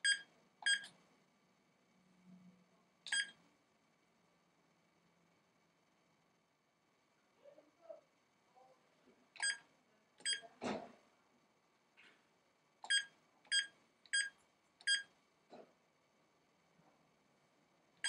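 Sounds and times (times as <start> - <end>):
alarm keypad beeps: 0.0 - 0.9, 3.1 - 3.4, 10.2 - 10.4, 12.9 - 14.3.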